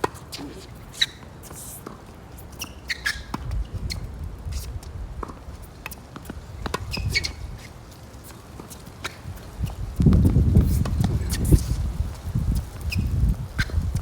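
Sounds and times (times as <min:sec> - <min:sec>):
wind buffeting microphone: 0:03.4 - 0:05.3, 0:06.4 - 0:07.6, 0:09.2 - 0:14.0.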